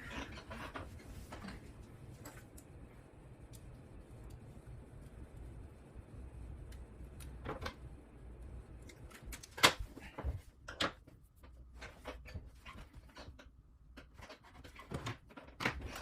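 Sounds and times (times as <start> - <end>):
low steady hum: 0.0 - 16.0
clicks and knocks of parts: 8.9 - 16.0.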